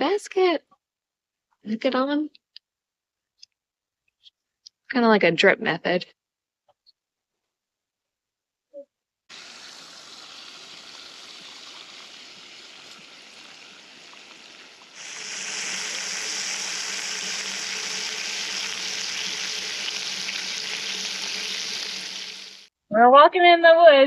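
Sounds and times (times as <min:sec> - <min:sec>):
food sizzling in a pan: 0:09.3 - 0:22.7
steady hissing: 0:09.3 - 0:22.7.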